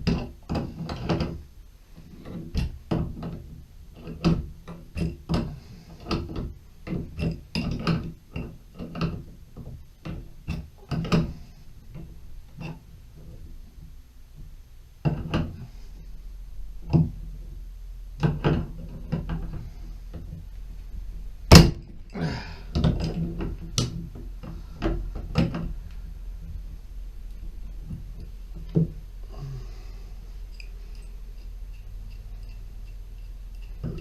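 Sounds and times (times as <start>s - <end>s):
tools knocking and clunking: 2.2s - 13.9s, 18.2s - 20.4s, 22.7s - 25.8s, 27.8s - 29.0s, 30.5s - 34.0s.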